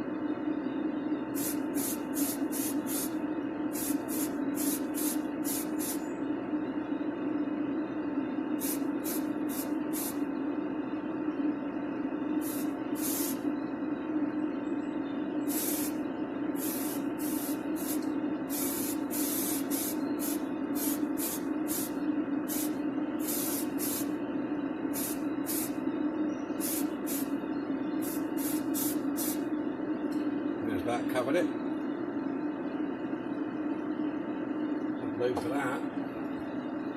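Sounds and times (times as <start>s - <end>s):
steady low hum: 0.0s - 36.9s
spray can hissing bursts: 1.4s - 6.0s, 8.6s - 10.2s, 12.4s - 13.4s, 15.5s - 16.0s, 16.6s - 24.1s, 25.0s - 25.7s, 26.6s - 27.3s, 28.0s - 29.4s.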